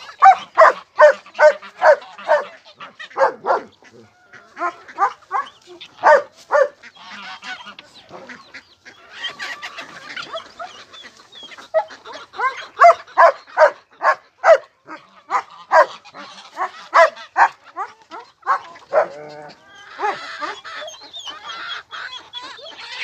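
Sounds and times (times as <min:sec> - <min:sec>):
animal calls: 0:00.0 - 0:23.0.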